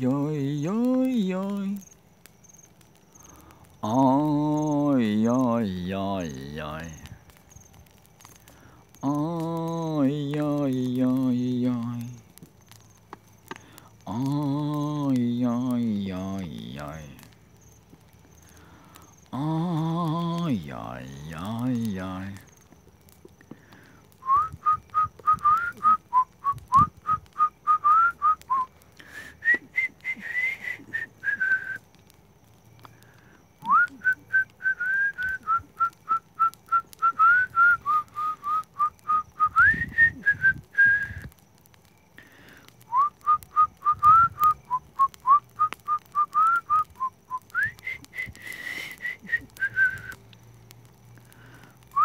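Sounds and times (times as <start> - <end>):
person whistling a tune: 24.2 - 28.8, 29.4 - 31.9, 33.6 - 41.3, 42.9 - 50.2.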